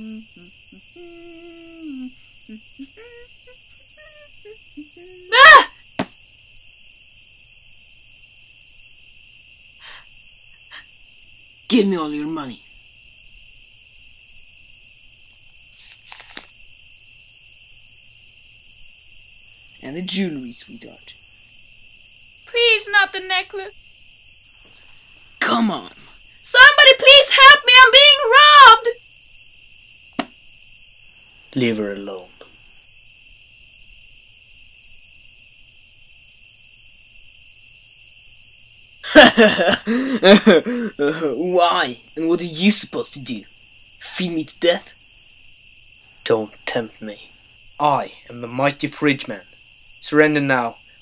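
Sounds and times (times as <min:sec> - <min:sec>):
crickets chirping: 0:00.0 - 0:51.0
loud voice: 0:05.3 - 0:05.7, 0:26.5 - 0:28.9.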